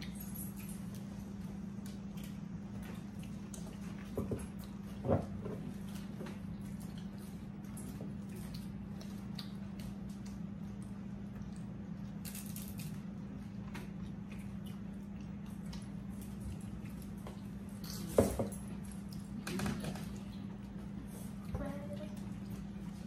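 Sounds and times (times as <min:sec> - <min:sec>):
person chewing wetly: 0:00.0 - 0:05.0, 0:05.8 - 0:12.3, 0:12.9 - 0:18.1
steady low hum: 0:00.0 - 0:23.0.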